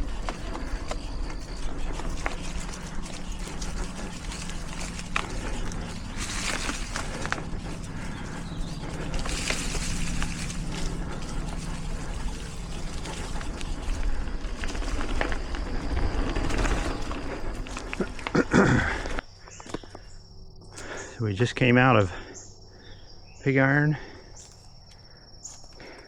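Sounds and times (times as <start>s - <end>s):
bike clicks and rattles: 0.0s - 21.1s, 24.0s - 26.0s
bike tyres rolling on dirt: 0.0s - 26.0s.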